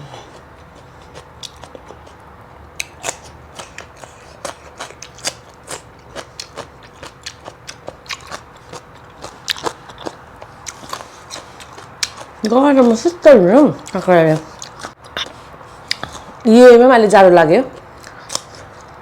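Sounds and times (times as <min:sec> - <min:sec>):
chewing crunchy food: 0:00.0 - 0:13.1, 0:13.8 - 0:16.4, 0:17.7 - 0:19.0.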